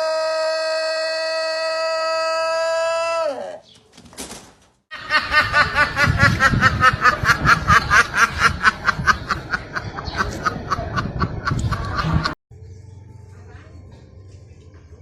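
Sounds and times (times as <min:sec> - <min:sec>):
rooster crowing: 0:00.0 - 0:03.6.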